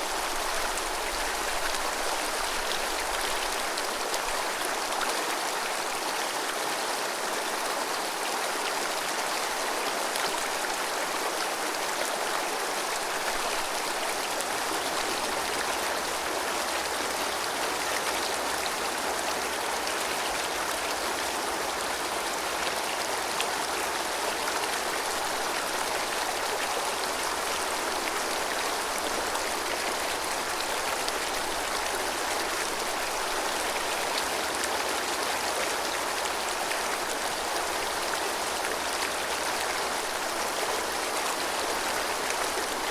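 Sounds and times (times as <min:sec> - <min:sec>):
river babbling over stones: 0:00.0 - 0:42.9.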